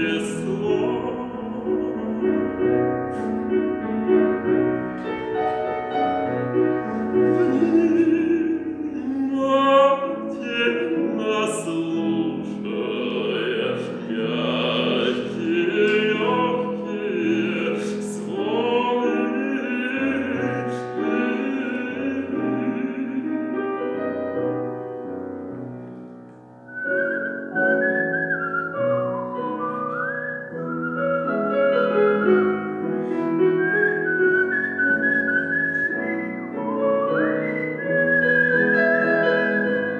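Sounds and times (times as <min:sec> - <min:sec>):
man singing operatically: 0:00.0 - 0:03.7, 0:06.9 - 0:23.9
piano accompaniment: 0:00.0 - 0:39.9.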